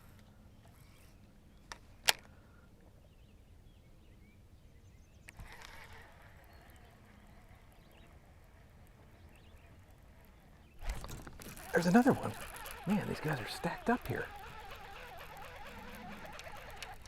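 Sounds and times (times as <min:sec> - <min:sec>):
fishing tackle clicks: 0:10.8 - 0:17.0.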